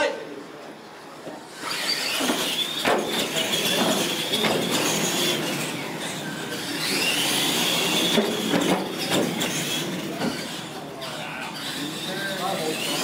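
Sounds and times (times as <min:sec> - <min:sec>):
tyre noise on concrete: 0:01.2 - 0:10.6
toy truck electric motor whine: 0:01.5 - 0:13.0.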